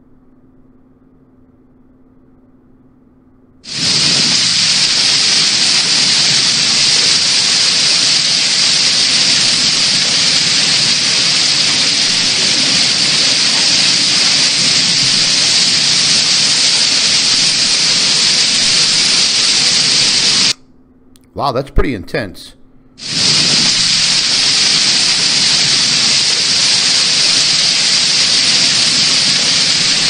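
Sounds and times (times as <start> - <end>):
hail and heavy rain pelting: 3.7 - 20.6, 23.0 - 30.0.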